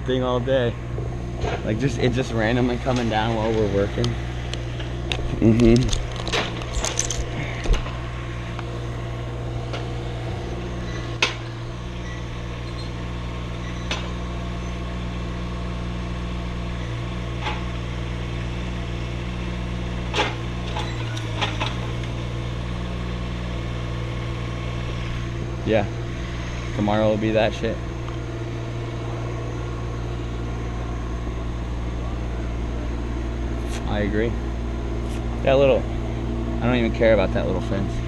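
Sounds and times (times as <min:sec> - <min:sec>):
motor idling: 0:00.0 - 0:38.0.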